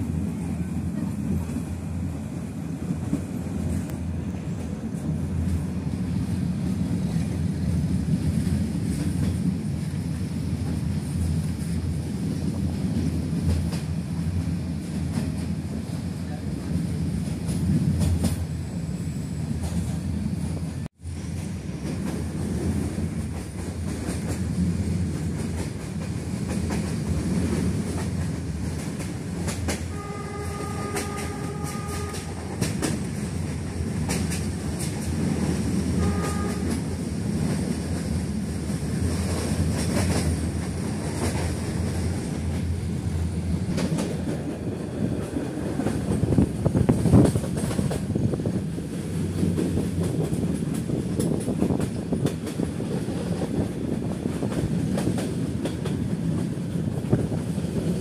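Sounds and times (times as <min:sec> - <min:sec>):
train rumble: 0:00.0 - 0:58.0
locomotive horn blast: 0:29.9 - 0:32.6, 0:35.9 - 0:36.9.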